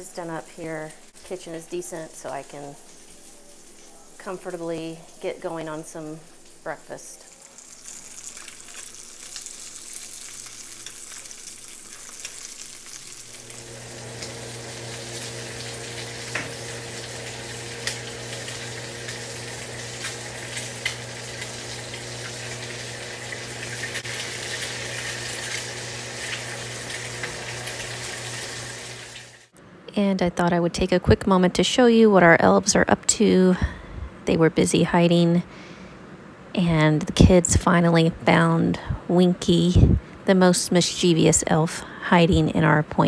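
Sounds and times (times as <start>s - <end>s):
food sizzling in a skillet: 0.1s - 29.5s.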